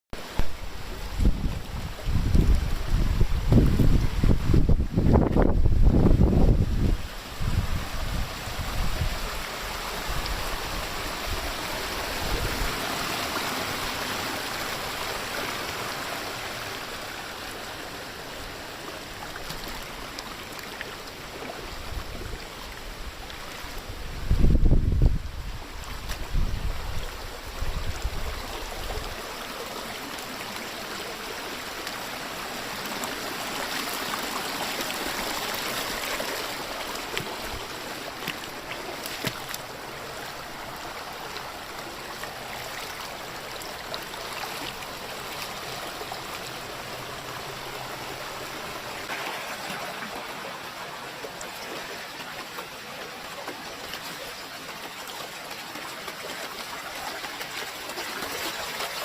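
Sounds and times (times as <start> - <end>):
river water rushing: 0.2 - 59.0
wind rumbling on microphone: 0.4 - 13.6, 21.6 - 29.3.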